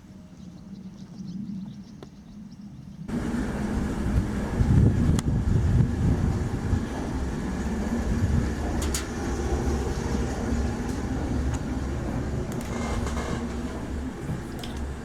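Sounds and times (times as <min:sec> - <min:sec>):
train rumbling on track: 0:03.1 - 0:15.0.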